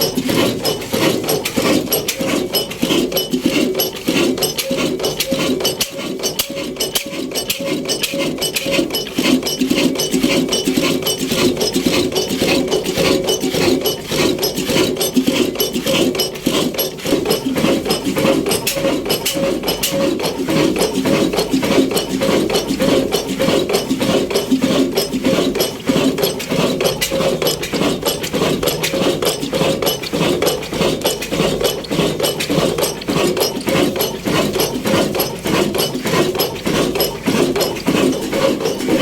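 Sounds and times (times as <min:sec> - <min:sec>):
diesel engine clattering: 0:00.0 - 0:15.2.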